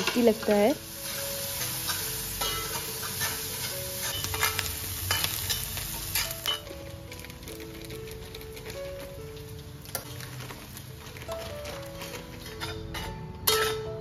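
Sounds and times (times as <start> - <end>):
metal spatula scraping iron pan: 0.0 - 6.6, 11.4 - 14.0
onion sizzling in a pan: 0.0 - 13.8
soft background music: 0.0 - 14.0.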